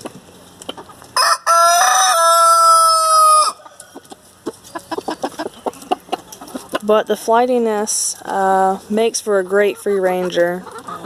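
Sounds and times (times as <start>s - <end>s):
hens clucking: 0.0s - 11.0s
rooster crowing: 1.2s - 3.8s.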